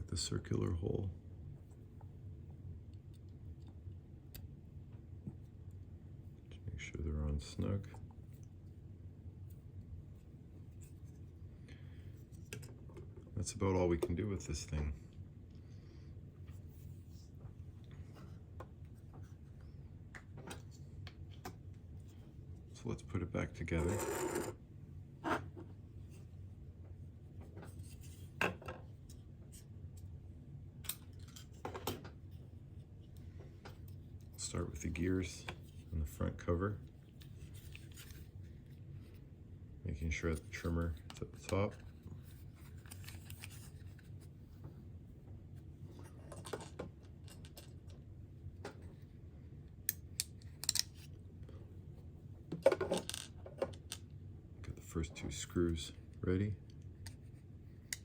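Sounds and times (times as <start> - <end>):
low steady hum: 0.0 - 58.0
light clicks of small parts: 49.8 - 51.1.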